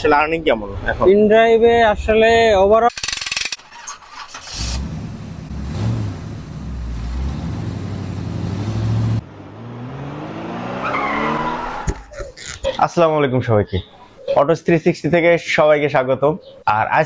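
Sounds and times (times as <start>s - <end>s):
road noise: 3.0s - 13.0s
engine revving up: 4.2s - 11.9s
vehicle engine running: 4.5s - 9.7s.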